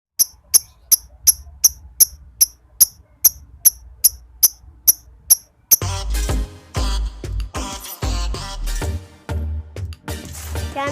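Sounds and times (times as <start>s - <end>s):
high-pitched chirping ticks: 0.2s - 5.8s.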